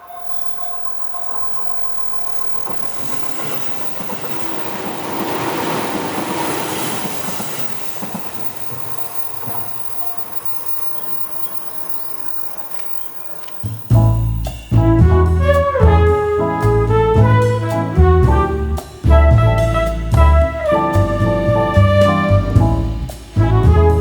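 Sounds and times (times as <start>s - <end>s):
level crossing warning bell: 0.0s - 14.8s
train wheels clacking over rails: 2.3s - 14.8s.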